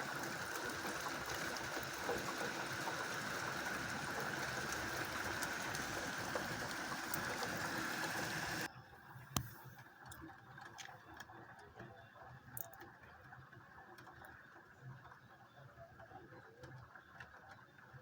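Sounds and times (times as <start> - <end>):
rain falling: 0.0 - 8.7
water drops ticking: 0.0 - 8.7.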